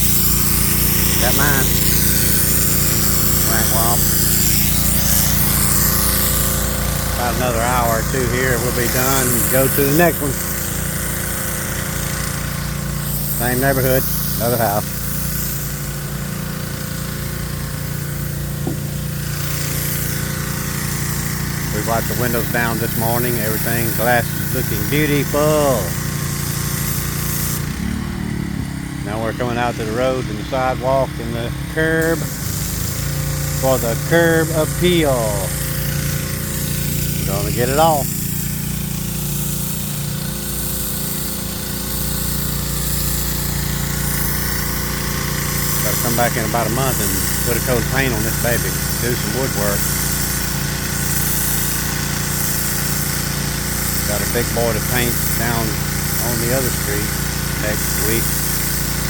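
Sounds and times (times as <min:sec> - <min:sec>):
hiss of water spray: 0:00.0 - 0:29.0, 0:31.5 - 0:59.0
pressure washer engine hum: 0:00.0 - 0:59.0.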